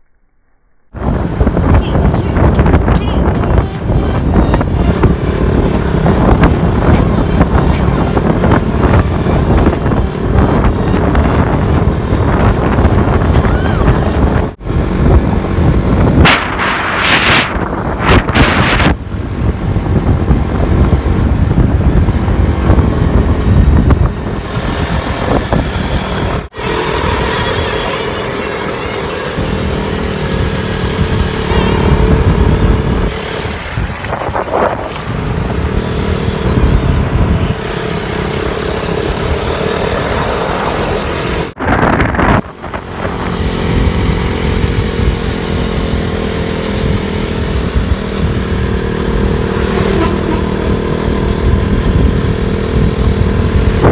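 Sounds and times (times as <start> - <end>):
motorcycle engine running: 0.9 - 53.9.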